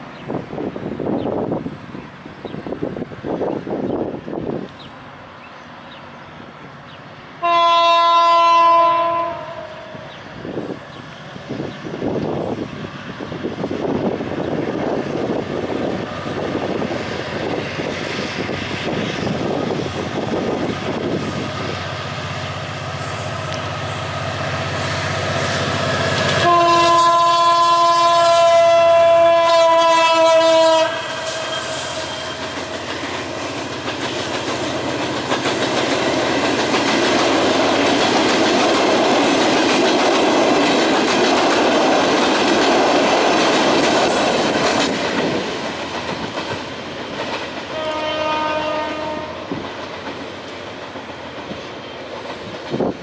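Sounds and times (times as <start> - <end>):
train air horn blast: 7.4 - 10.1, 23.0 - 32.6, 47.7 - 49.6
train wheels clacking on rails: 29.4 - 53.0
locomotive engine running: 32.0 - 48.0.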